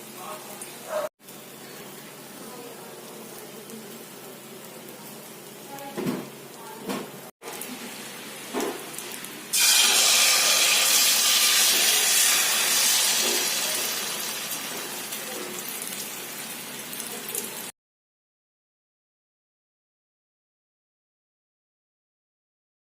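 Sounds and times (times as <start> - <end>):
eggplant sizzling in hot oil: 0.0 - 17.7.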